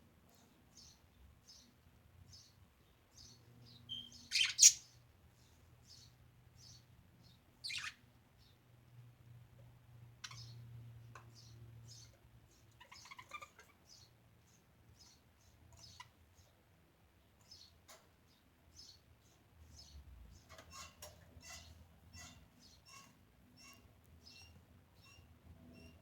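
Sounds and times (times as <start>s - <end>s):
budgerigars chirping: 3.9s - 4.9s, 7.6s - 8.0s, 12.7s - 14.1s.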